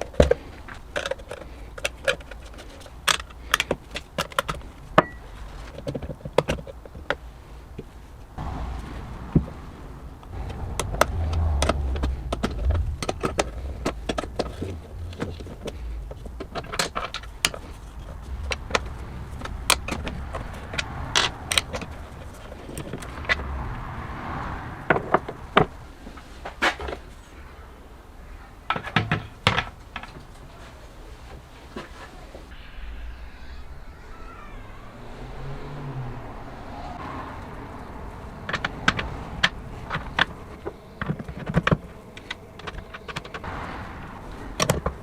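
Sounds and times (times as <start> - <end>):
metal parts clicking and clinking: 0.0 - 7.1, 10.8 - 23.2
low rumble: 8.3 - 16.4, 17.2 - 26.1, 32.5 - 40.9.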